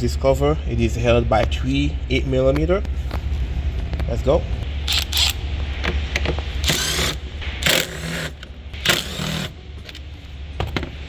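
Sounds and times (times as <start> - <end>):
small power tool whirring: 6.6 - 10.0.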